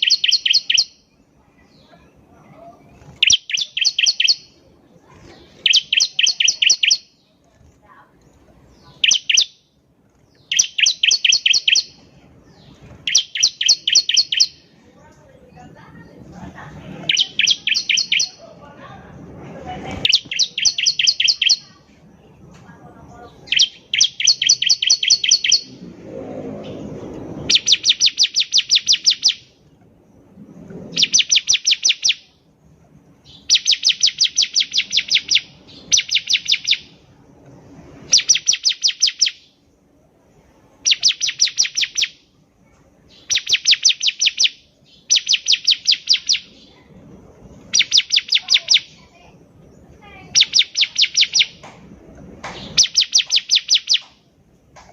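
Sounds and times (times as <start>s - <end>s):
bird singing high chips: 0.0s - 2.0s, 2.7s - 4.7s, 5.3s - 7.3s, 8.2s - 14.8s, 16.9s - 18.5s, 20.0s - 21.9s, 23.3s - 25.9s, 26.6s - 29.6s, 30.8s - 32.4s, 33.2s - 37.2s, 37.9s - 39.7s, 40.7s - 42.3s, 43.1s - 46.8s, 47.4s - 51.7s, 52.4s - 54.2s.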